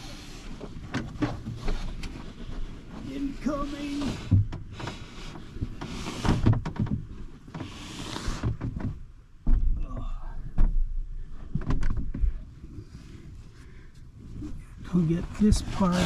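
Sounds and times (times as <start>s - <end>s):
dull thumps and knocks: 4.0s - 7.7s, 8.4s - 12.4s
plastic wrap rustling and sliding: 14.9s - 16.0s.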